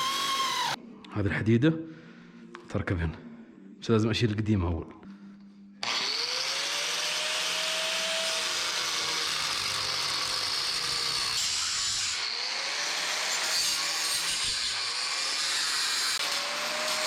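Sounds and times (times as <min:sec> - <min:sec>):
power tool grinding metal: 0:00.0 - 0:00.8, 0:05.8 - 0:17.0.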